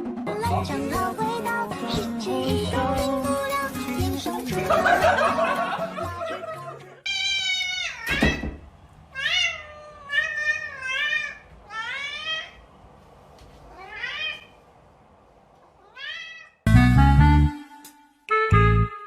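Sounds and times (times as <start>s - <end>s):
loud music: 0.0s - 6.8s
cat meowing: 7.1s - 8.5s, 9.1s - 12.6s, 13.7s - 14.6s, 15.7s - 16.6s.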